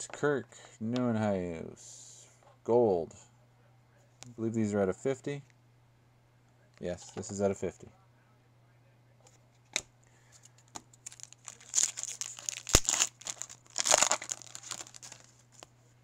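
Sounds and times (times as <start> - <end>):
foil pack tearing and crinkling: 11.0 - 15.7.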